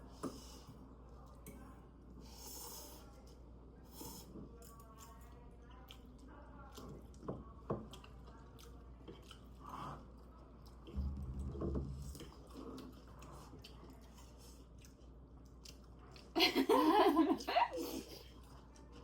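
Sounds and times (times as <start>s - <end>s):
person chewing and crunching food: 7.9s - 11.4s, 12.2s - 16.3s
low thud: 11.0s - 12.4s.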